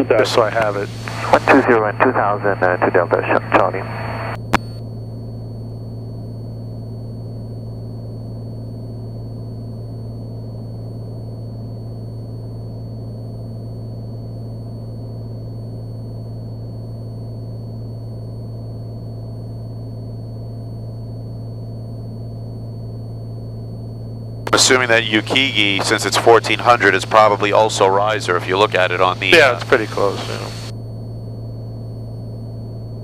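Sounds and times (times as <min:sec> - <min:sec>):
propeller engine droning: 0:00.0 - 0:04.4, 0:24.1 - 0:30.7
faint high steady whine: 0:00.0 - 0:33.0.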